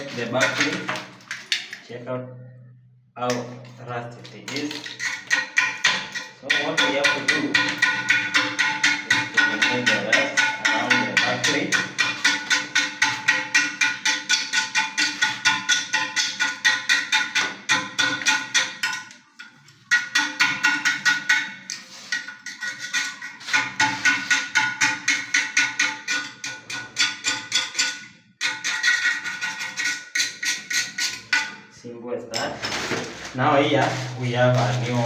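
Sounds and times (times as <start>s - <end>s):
music with fast percussive beat: 5.2s - 18.8s.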